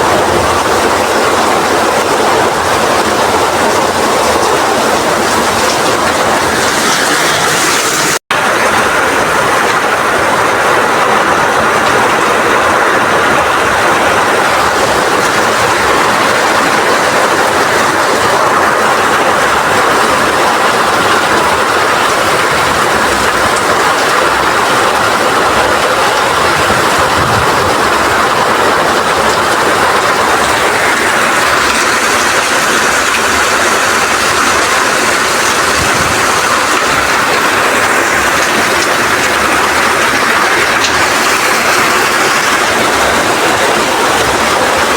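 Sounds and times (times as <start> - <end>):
heavy rain in strong wind: 0.0 - 44.9.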